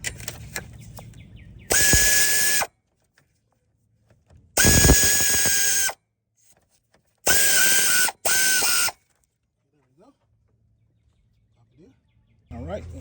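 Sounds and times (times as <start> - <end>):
cordless power tool whining: 1.7 - 2.7, 4.6 - 6.0, 7.2 - 9.0.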